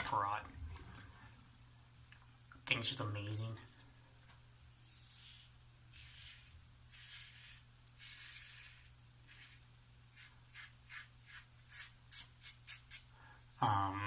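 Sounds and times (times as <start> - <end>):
razor scraping stubble: 4.8 - 13.1.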